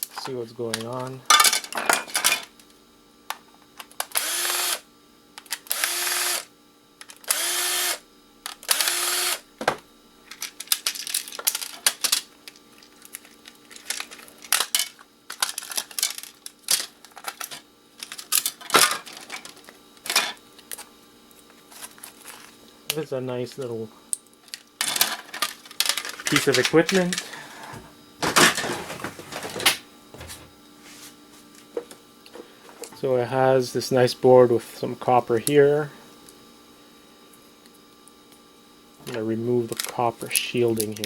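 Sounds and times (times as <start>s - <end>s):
cordless drill whirring: 4.1s - 4.8s, 5.7s - 6.5s, 7.2s - 8.0s, 8.6s - 9.4s.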